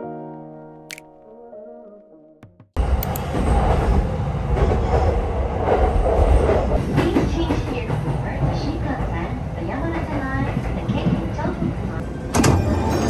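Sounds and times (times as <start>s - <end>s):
music: 0.0s - 2.7s
train rumbling on rails: 2.8s - 13.0s.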